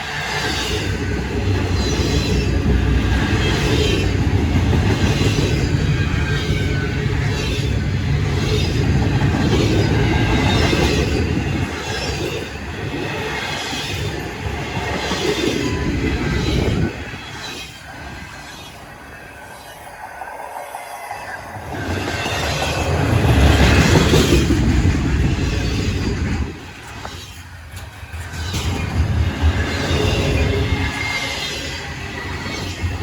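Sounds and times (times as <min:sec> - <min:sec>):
freight train rumbling past: 0:00.0 - 0:33.0
wheels clattering over rail joints: 0:21.6 - 0:33.0.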